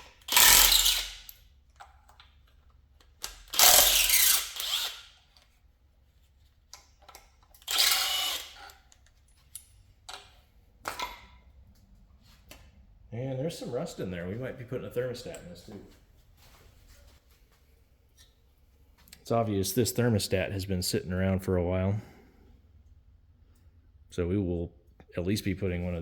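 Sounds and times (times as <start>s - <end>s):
power tool bursts: 0.2s - 1.3s, 3.5s - 5.1s, 7.6s - 8.6s.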